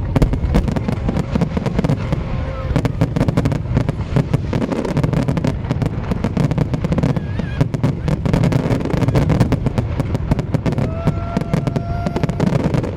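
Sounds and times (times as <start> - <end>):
fireworks bangs crackling: 0.0 - 12.9
steady low rumble: 0.0 - 12.9.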